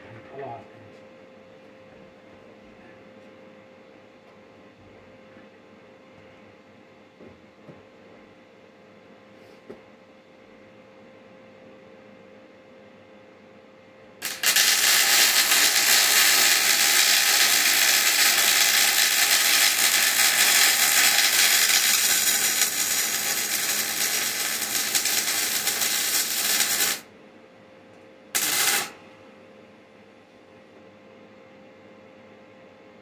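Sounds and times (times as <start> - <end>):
welding arc crackling: 14.2 - 27.1, 28.4 - 29.0.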